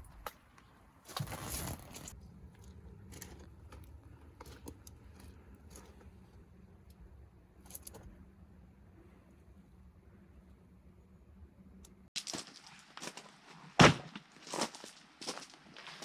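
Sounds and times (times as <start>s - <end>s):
low steady hum: 0.0s - 12.1s.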